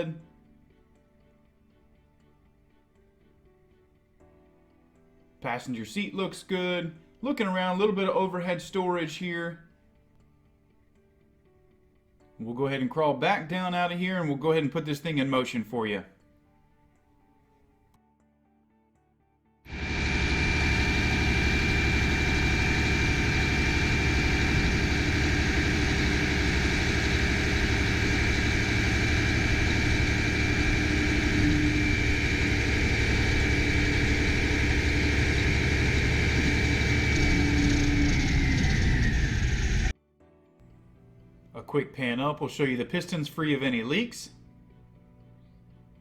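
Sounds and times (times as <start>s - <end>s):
diesel engine rumble: 19.7s - 39.9s
hydraulic pump whine: 19.7s - 39.9s.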